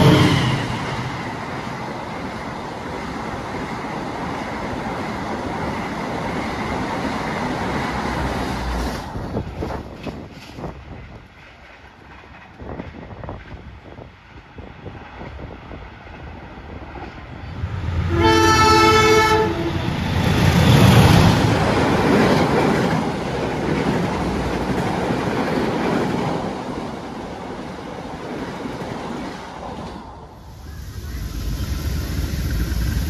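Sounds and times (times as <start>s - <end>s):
train horn: 0.0s - 0.6s, 18.0s - 20.0s
train wheels on rails: 0.0s - 33.0s.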